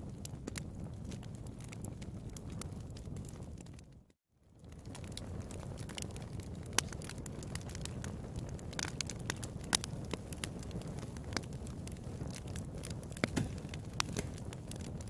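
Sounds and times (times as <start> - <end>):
wood fire crackling: 0.0 - 15.0
sharp pops of fire: 4.7 - 15.0.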